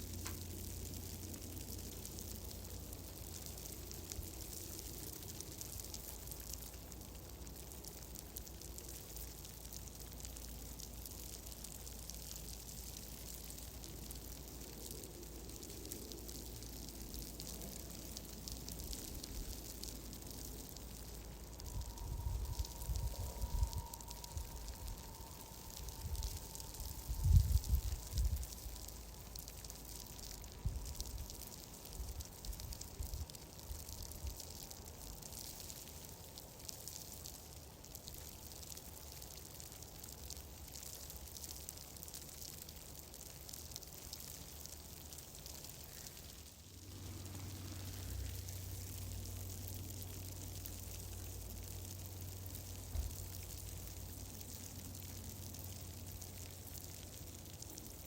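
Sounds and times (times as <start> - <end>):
fire crackling: 0.0 - 58.0
low fire rumble: 0.0 - 58.0
low rumble: 13.7 - 31.4, 46.7 - 56.3.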